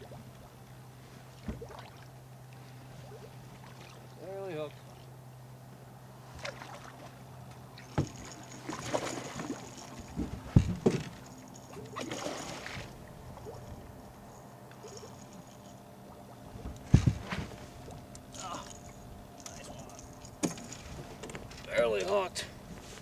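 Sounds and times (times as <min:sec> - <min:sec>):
low steady hum: 0:00.0 - 0:23.0
fish knocking against boat: 0:10.1 - 0:11.2, 0:16.6 - 0:17.6
scraping splashy noises: 0:11.8 - 0:13.0.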